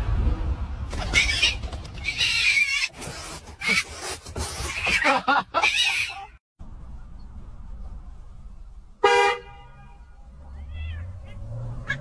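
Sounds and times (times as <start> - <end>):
low rumble: 0.0 - 1.0.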